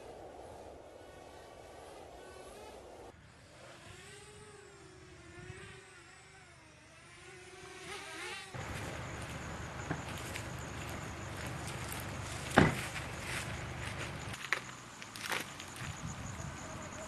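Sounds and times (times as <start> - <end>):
small motor buzzing: 1.0 - 14.4
steady rumbling noise: 8.6 - 17.0.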